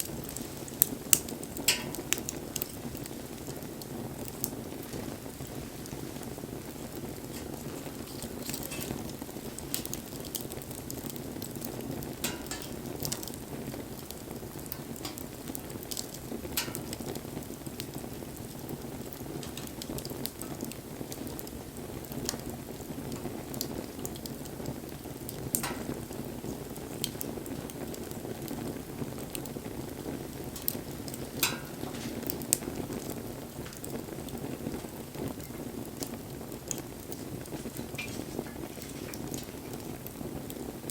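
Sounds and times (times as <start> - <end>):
burning wood crackling and popping: 0.0 - 40.9
campfire flame rushing: 0.0 - 40.9.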